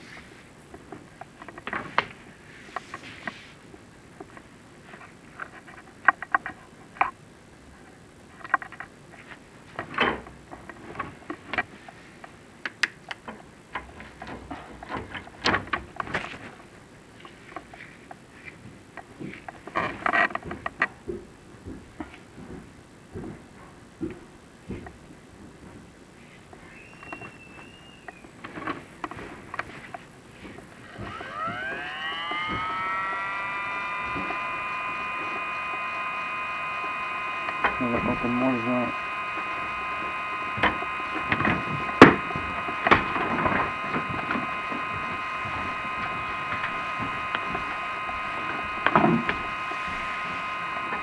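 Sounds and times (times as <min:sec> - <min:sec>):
small electric motor whining: 0:26.8 - 0:51.0
camera knocking and scraping in flue: 0:28.6 - 0:51.0.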